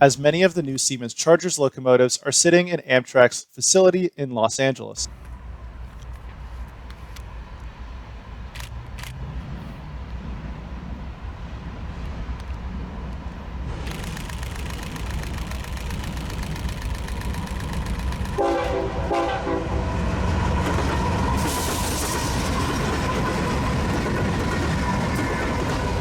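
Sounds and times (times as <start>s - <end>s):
train rumbling past: 5.1s - 26.0s
train air horn blasts: 18.4s - 22.7s.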